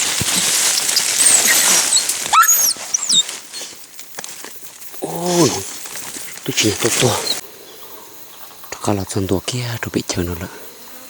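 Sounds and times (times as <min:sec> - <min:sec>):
whistled animal calls: 0:00.0 - 0:03.8, 0:06.8 - 0:07.4
insect hiss: 0:00.0 - 0:11.0.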